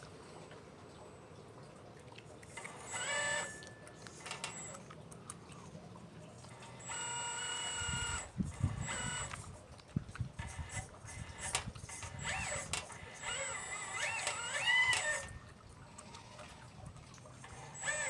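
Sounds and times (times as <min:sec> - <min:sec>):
electric motors whining: 0:02.5 - 0:04.9, 0:06.5 - 0:09.5, 0:10.4 - 0:15.5, 0:17.4 - 0:18.0.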